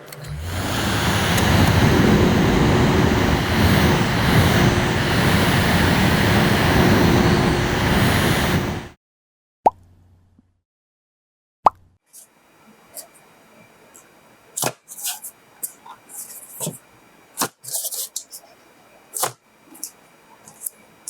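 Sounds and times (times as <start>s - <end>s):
faint steady hum: 0.0s - 8.9s
air blasting rush: 0.3s - 8.9s.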